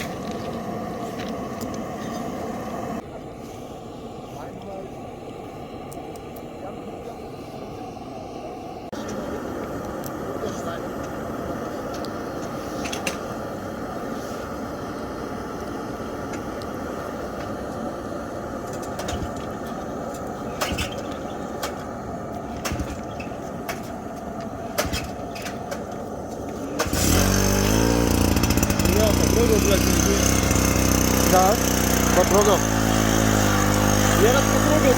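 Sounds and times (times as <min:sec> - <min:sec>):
small petrol engine running: 0:26.7 - 0:34.9.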